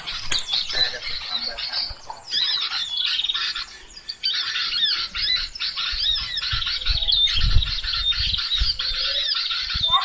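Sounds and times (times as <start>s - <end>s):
small birds twittering: 0.0s - 10.0s.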